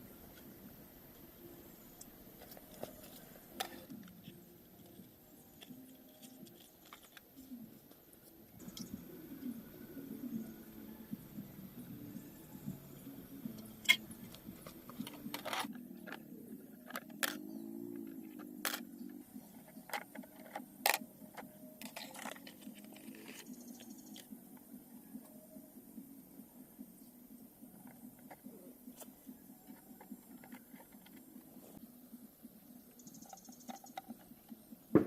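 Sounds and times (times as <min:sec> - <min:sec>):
faint low hum: 0:00.0 - 0:34.9.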